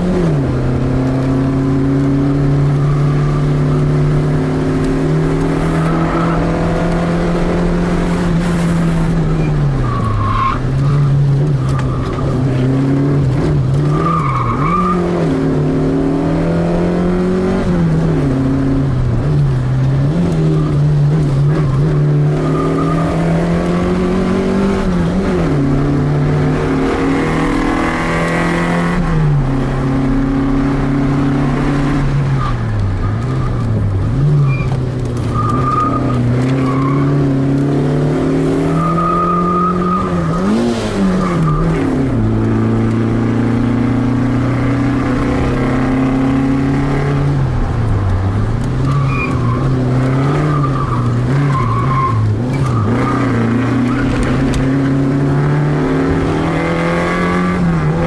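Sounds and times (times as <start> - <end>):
car engine revving: 0.0 - 58.0
tyre squeals: 8.8 - 12.7, 13.8 - 15.1, 32.4 - 37.4, 38.6 - 42.0, 48.8 - 54.5.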